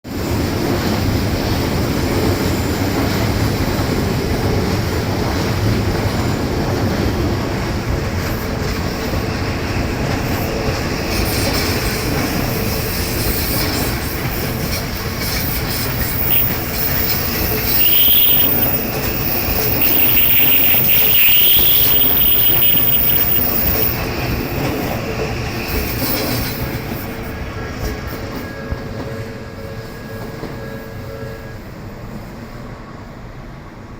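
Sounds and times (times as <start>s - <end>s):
train wheels rumbling on rails: 0.1s - 33.9s
high wheel squeals: 8.4s - 31.8s.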